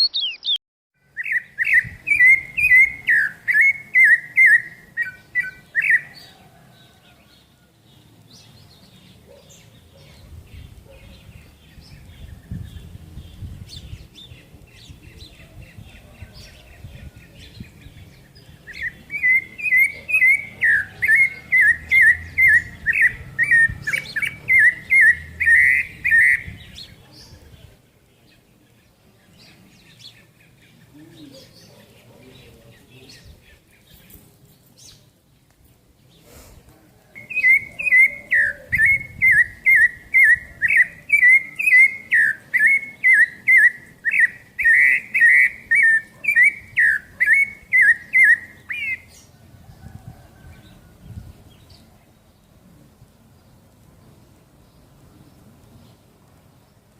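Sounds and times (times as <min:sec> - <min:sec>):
songbird whistling repeated notes: 0:00.0 - 0:06.3, 0:18.6 - 0:26.8, 0:37.2 - 0:49.1
faint bird chirps: 0:00.0 - 0:35.1.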